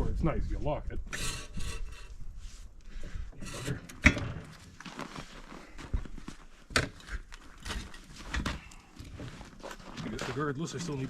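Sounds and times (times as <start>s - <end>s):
shuffling and rubbing: 1.6s - 3.8s, 4.6s - 6.7s.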